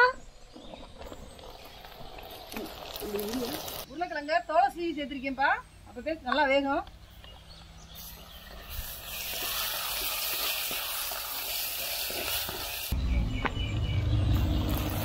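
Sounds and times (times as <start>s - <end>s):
food sizzling in hot oil: 1.7s - 3.9s, 8.0s - 13.0s, 14.4s - 15.0s.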